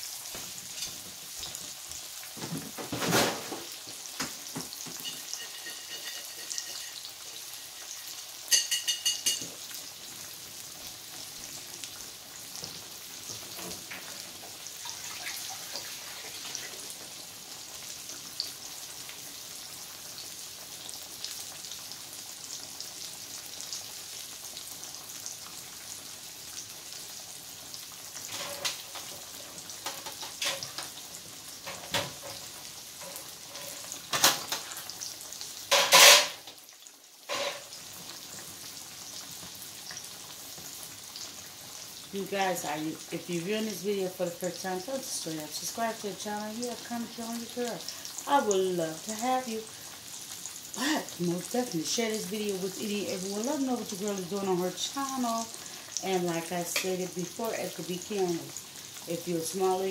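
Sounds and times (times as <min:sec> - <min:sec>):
pork chop sizzling in hot oil: 0:00.0 - 0:59.9.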